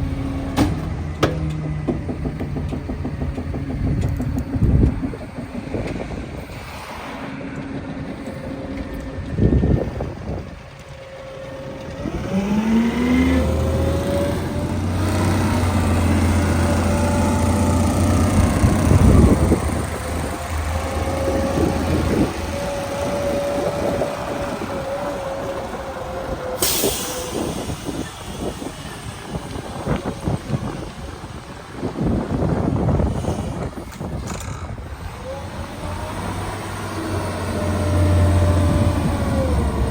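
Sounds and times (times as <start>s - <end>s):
garbage truck engine speeding up: 0.0s - 39.9s
hydraulic whine: 0.0s - 39.9s
thump: 0.5s - 3.0s
air hiss: 26.6s - 30.0s.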